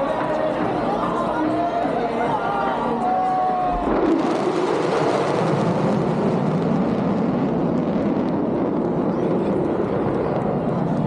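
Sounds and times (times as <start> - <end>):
jet engine in flight: 3.7 - 11.0.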